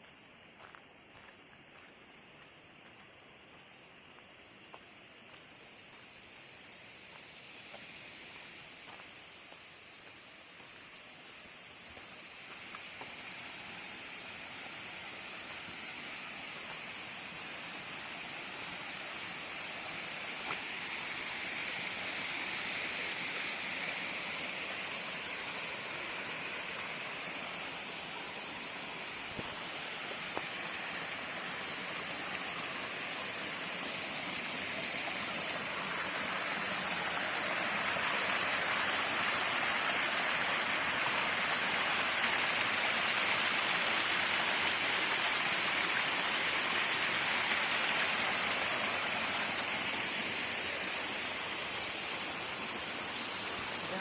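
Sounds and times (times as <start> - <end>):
waterfall rushing: 24.0 - 54.0.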